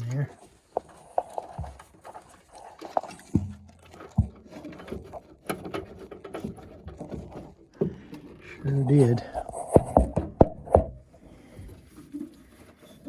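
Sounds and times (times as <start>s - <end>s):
dull knocks: 9.5s - 11.1s.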